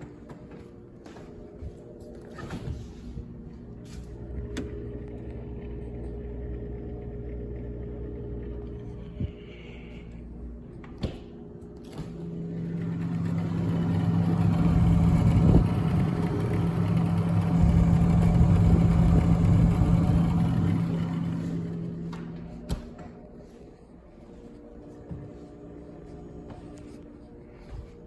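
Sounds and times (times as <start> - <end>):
small electric motor humming: 12.2 - 22.7.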